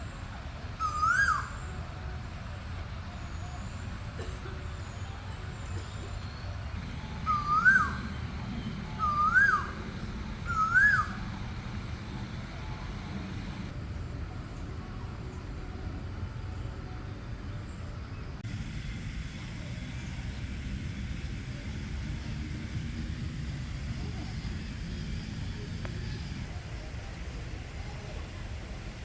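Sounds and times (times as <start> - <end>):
bird whistled calls: 0.8 - 1.7, 6.9 - 11.4.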